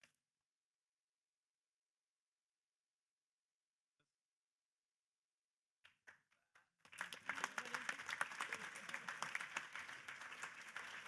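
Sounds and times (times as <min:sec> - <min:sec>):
audience applauding: 0:06.8 - 0:11.0.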